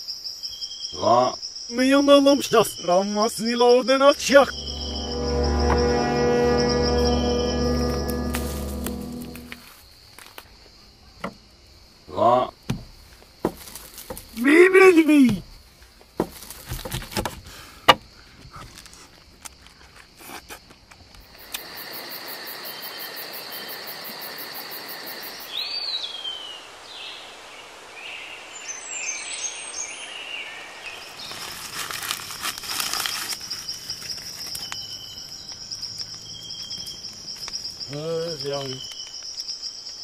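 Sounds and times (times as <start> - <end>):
insects trilling: 0.0 - 40.0
knocks: 12.7 - 14.3.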